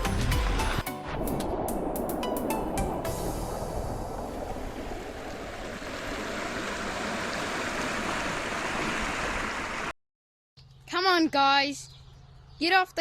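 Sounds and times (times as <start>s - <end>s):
sea water washing over rocks: 1.0s - 9.9s.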